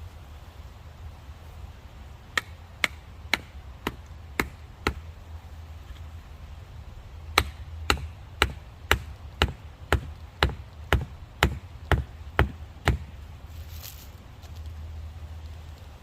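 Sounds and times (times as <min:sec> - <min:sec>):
sledgehammer striking wooden wedge: 0:02.4 - 0:05.0, 0:07.4 - 0:13.2.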